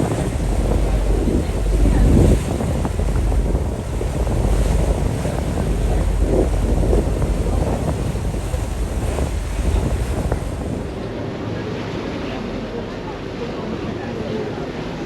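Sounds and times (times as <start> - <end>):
wind buffeting microphone: 0.0 - 11.2
water rushing: 0.0 - 11.6.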